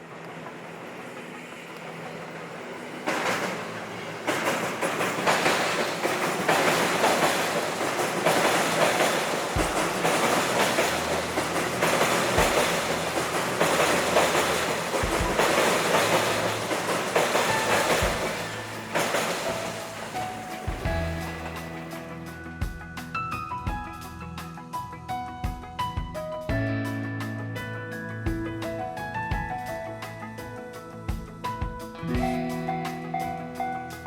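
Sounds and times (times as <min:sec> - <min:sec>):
train wheels clattering: 0:00.0 - 0:25.9.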